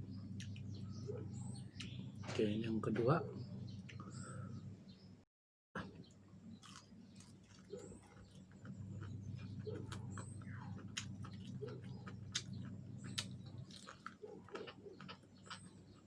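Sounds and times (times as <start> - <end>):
steady low hum: 0.0 - 5.2, 5.8 - 15.9
crunching while eating: 5.8 - 16.0.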